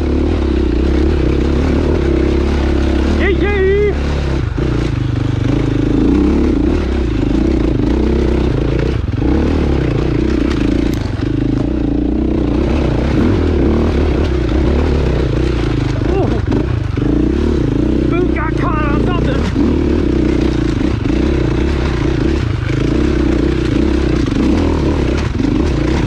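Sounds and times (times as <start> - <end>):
dirt bike engine running: 0.0 - 26.0
bike knocks and rattles: 4.3 - 17.5, 19.4 - 26.0.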